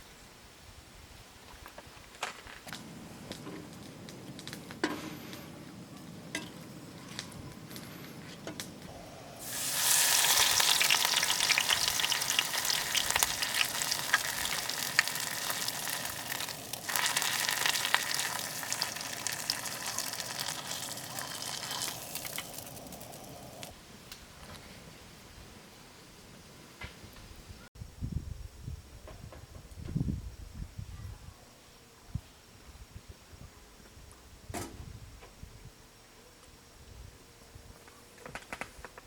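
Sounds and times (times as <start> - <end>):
food sizzling in a hot pan: 8.9 - 23.7.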